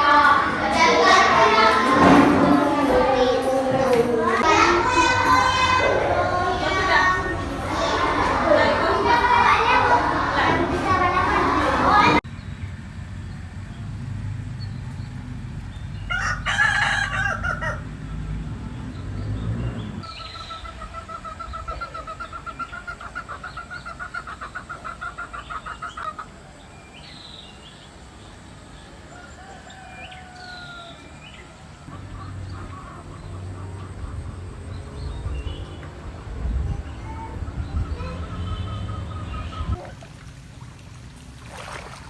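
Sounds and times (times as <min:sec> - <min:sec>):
rooster crowing: 0:16.1 - 0:18.1, 0:28.9 - 0:32.0
small birds chirping: 0:18.0 - 0:40.0.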